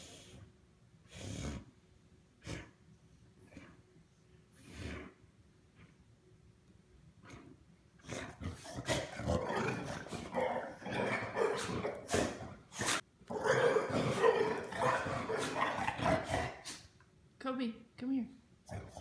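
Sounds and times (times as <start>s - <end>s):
dogs growling: 2.4s - 2.8s, 3.4s - 3.8s, 4.6s - 5.3s, 7.2s - 16.9s, 18.7s - 19.0s.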